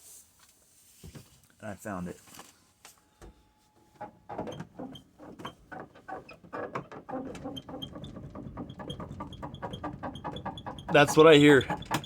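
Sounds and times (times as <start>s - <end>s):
van door squeaking: 4.0s - 12.0s.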